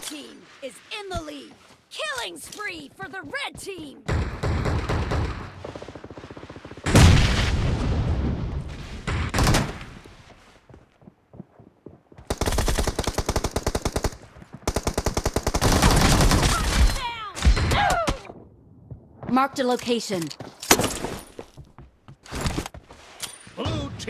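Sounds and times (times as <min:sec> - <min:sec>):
video game automatic gunfire: 0:12.3 - 0:16.6.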